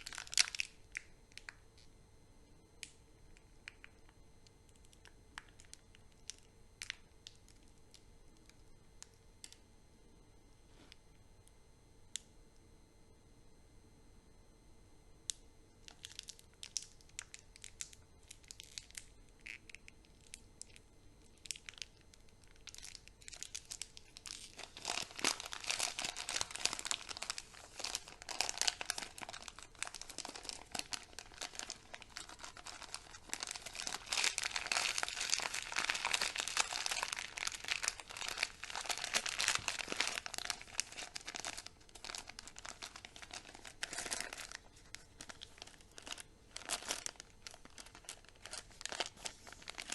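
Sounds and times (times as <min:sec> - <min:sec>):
candy wrappers crinkling: 0:00.0 - 0:01.9, 0:15.8 - 0:49.9.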